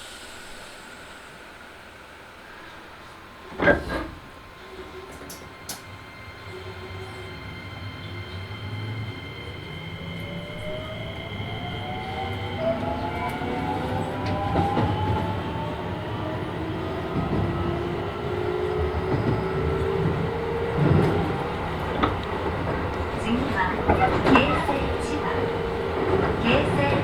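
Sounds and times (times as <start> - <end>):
wheels rumbling on rails: 2.7 - 27.0
electric train motor whine: 5.7 - 27.0.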